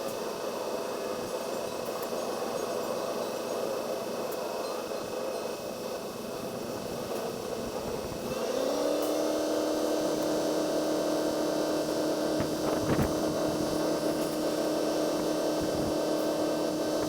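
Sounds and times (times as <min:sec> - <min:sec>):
engine running: 0:06.4 - 0:17.0.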